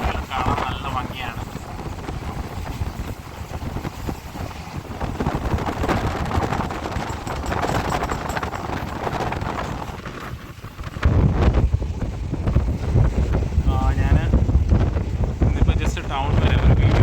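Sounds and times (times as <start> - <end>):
train wheels clattering on rails: 0.0 - 13.6
wind rushing past: 0.0 - 17.0.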